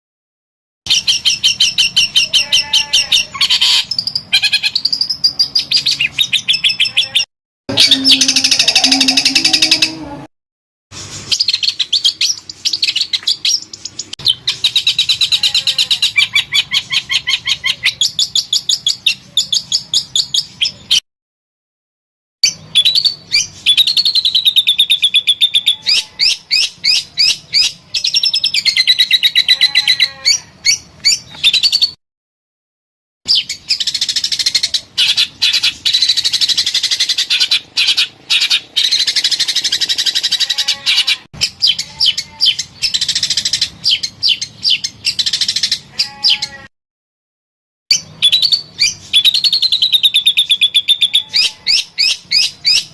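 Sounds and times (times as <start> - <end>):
songbird singing trills: 0.9 - 10.0, 22.4 - 31.9, 41.4 - 46.5, 47.9 - 52.9.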